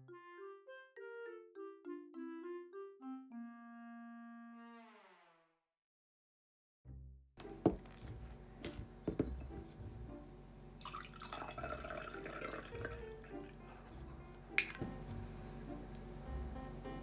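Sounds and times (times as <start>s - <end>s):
background music: 0.0s - 5.1s, 6.9s - 17.0s
water trickling and dripping: 10.8s - 13.6s.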